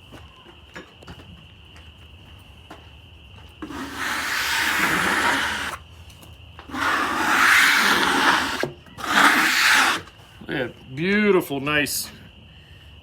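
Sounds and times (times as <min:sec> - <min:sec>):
rasp scraping wood: 0:03.6 - 0:05.8, 0:06.7 - 0:10.2.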